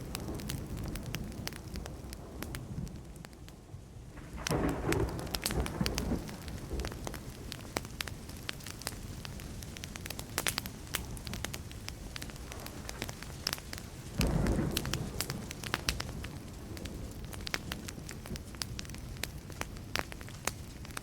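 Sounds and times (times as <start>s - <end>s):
low fire rumble: 0.0s - 21.0s
wood fire crackling and popping: 0.0s - 21.0s
distant thunder rumble: 4.1s - 7.7s, 14.1s - 19.3s.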